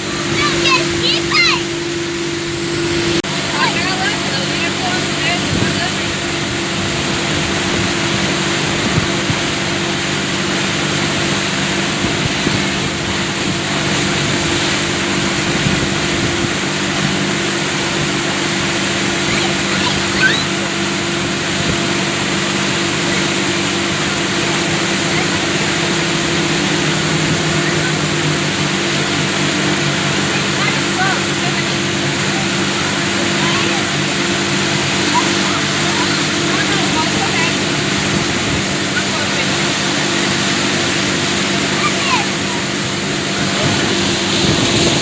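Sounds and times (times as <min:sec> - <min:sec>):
rushing noise: 0:00.0 - 0:06.4
motorboat engine running: 0:00.0 - 0:45.0.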